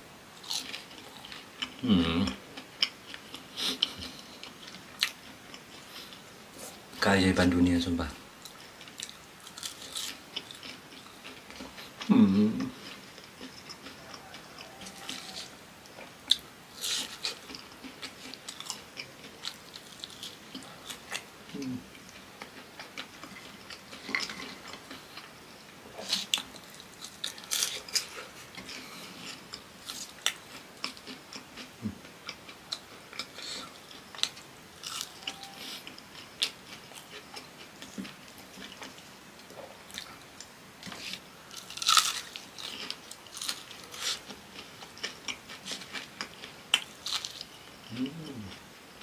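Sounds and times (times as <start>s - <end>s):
crisp chewing crunches: 8.4s - 12.0s, 12.6s - 25.3s, 26.0s - 39.1s, 40.8s - 48.6s.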